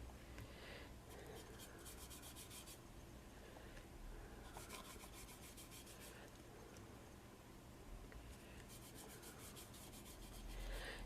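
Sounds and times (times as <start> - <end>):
scratchy paint dabbing strokes: 8.6 - 10.8.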